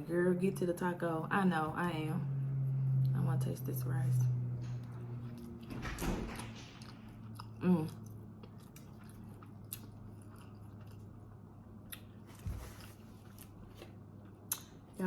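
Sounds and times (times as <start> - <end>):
person chewing food: 6.4 - 14.9.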